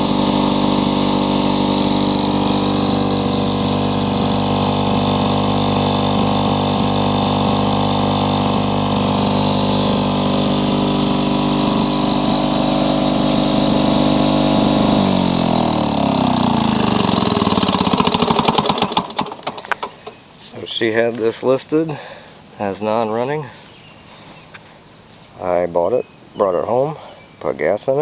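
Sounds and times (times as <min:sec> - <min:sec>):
push mower engine running: 0:00.0 - 0:20.3.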